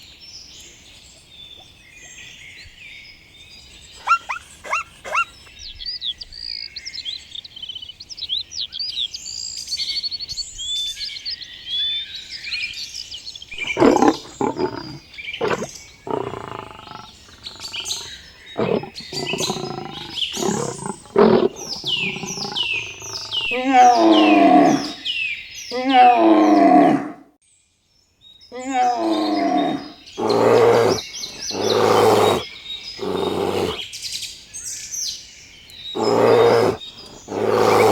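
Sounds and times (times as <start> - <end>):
loud wavering animal calls: 4.0 - 5.3, 13.6 - 25.0, 28.6 - 33.8, 36.0 - 37.9
rapid high bird chirps: 4.0 - 5.6, 13.6 - 25.0, 29.1 - 33.8, 35.9 - 37.9.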